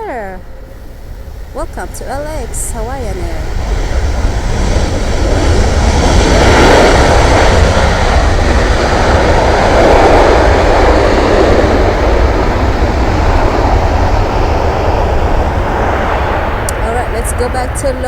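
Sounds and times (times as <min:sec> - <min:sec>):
jet airliner engines passing low: 0:00.0 - 0:18.0.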